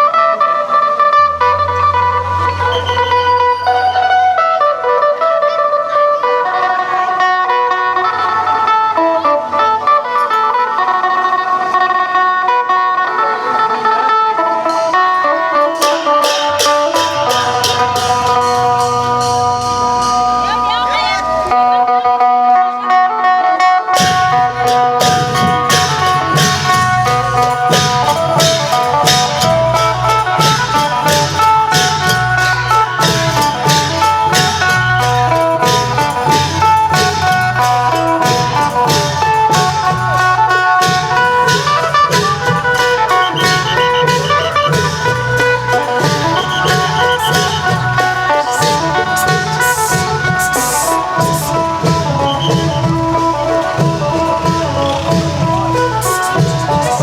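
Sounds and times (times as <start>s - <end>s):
plucked lute melody: 0.0s - 57.0s
long-drum band percussion: 13.3s - 21.6s, 24.0s - 57.0s.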